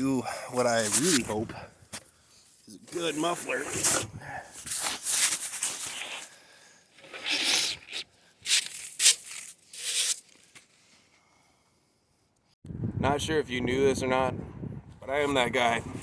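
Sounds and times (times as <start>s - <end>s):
rustling and scraping: 0.6s - 2.2s, 2.9s - 11.1s.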